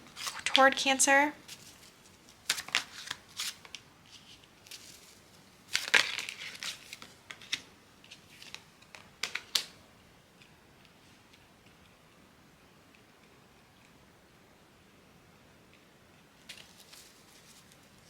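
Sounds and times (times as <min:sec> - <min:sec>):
cards being shuffled: 0:00.2 - 0:00.6, 0:01.5 - 0:05.1, 0:05.7 - 0:09.7.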